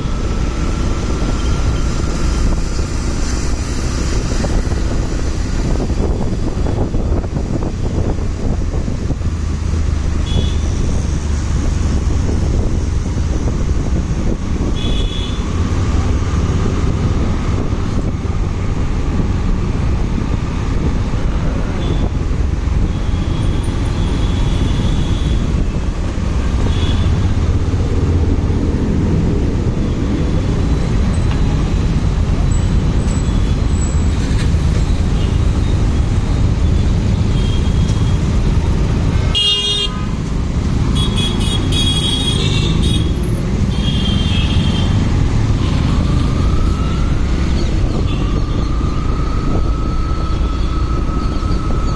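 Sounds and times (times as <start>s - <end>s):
wind noise: 0.0s - 51.9s
vehicle horns honking: 39.2s - 40.2s, 40.9s - 45.0s.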